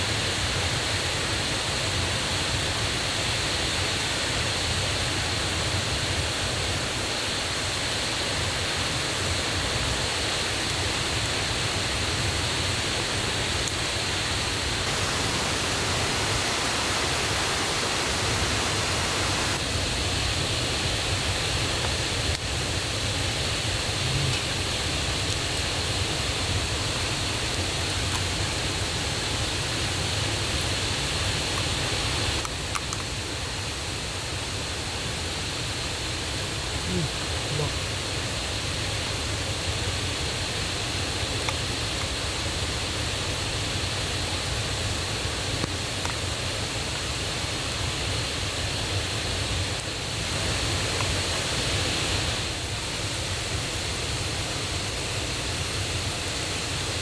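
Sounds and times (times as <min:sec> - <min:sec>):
stream and waterfall rushing: 0:12.7 - 0:21.7, 0:42.3 - 0:53.4.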